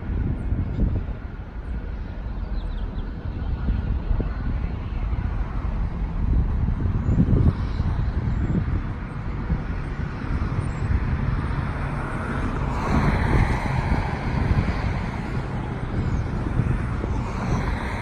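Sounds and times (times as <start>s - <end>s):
airplane landing rumble: 0.0s - 18.0s.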